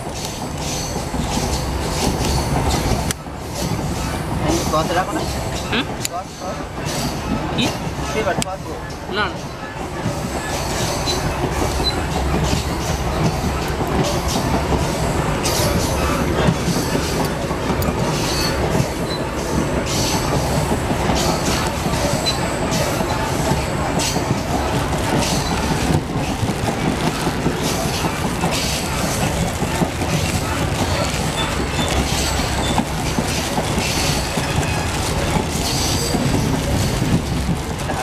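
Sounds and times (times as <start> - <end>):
train wheels rumbling on track: 0.0 - 38.0
high wheel squeals: 18.1 - 20.3.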